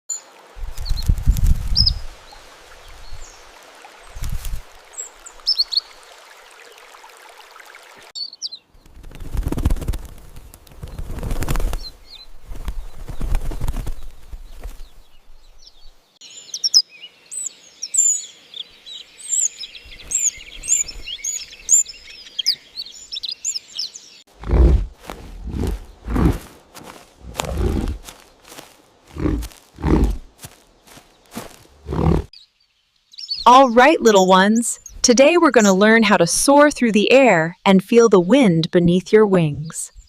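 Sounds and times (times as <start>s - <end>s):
small birds chirping: 0.1s - 6.0s, 7.7s - 40.0s
soft hiss: 0.2s - 6.7s.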